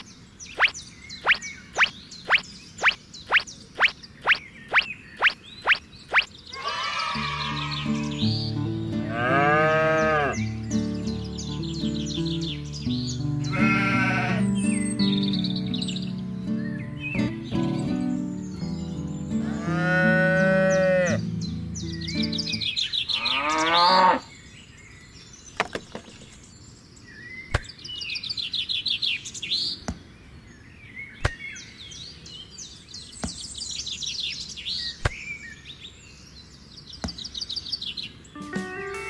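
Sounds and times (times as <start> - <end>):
birds chirping: 0.0 - 39.0
cattle mooing: 9.1 - 10.4, 13.5 - 14.4, 19.4 - 21.2, 23.2 - 24.2.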